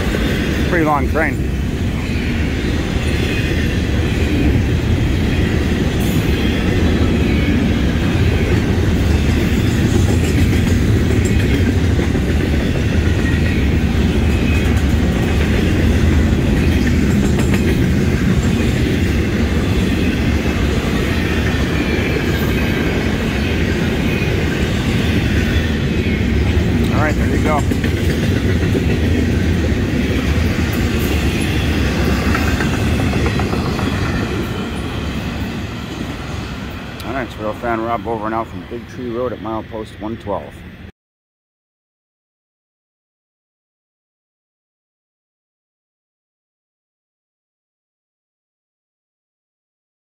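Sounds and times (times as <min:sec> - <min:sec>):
freight train wheels clattering: 0:05.3 - 0:25.8, 0:26.6 - 0:36.1.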